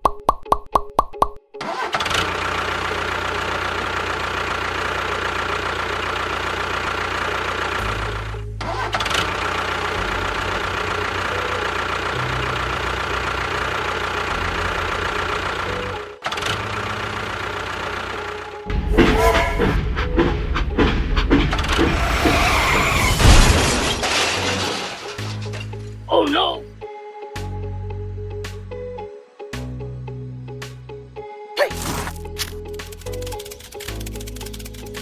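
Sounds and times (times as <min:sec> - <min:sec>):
background music with bass line: 0:25.8 - 0:33.4
small motor running: 0:31.7 - 0:35.0.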